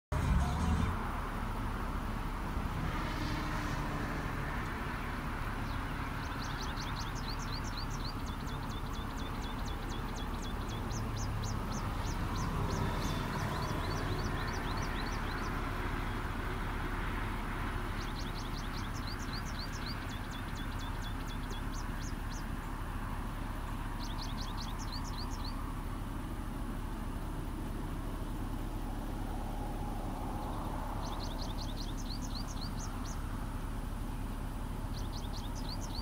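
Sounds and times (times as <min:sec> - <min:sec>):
low outdoor rumble: 0:00.1 - 0:36.0
bird singing high sweeping notes: 0:05.5 - 0:16.3, 0:17.8 - 0:22.5, 0:24.0 - 0:25.6, 0:30.0 - 0:33.3, 0:34.8 - 0:36.0.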